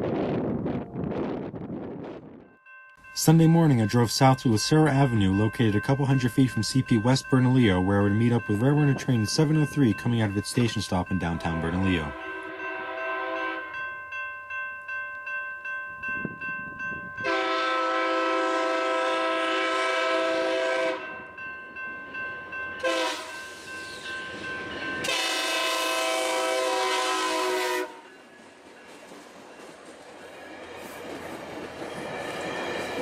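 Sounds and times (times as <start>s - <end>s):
crossing bell ringing: 2.4s - 33.0s
train horn blasts: 11.6s - 13.8s, 17.2s - 21.2s, 22.8s - 23.4s, 25.0s - 28.1s.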